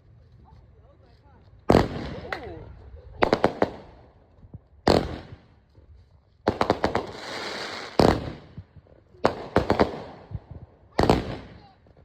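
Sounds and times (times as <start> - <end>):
fireworks popping and crackling: 0.0 - 5.7, 6.4 - 12.0
fireworks bangs: 1.7 - 2.6, 6.5 - 8.6, 9.2 - 11.9.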